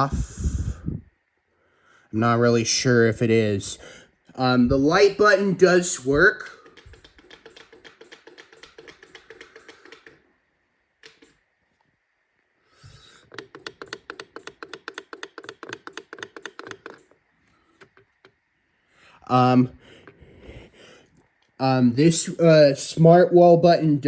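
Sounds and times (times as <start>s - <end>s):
rapid mechanical clicking: 5.8s - 10.3s, 11.0s - 11.4s, 12.8s - 18.4s.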